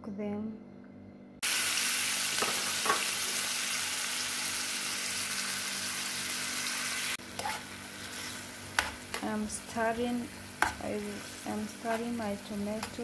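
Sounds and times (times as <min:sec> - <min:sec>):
vegetables sizzling in hot oil: 0:01.4 - 0:13.0
spoon stirring and scraping pan: 0:07.2 - 0:13.0.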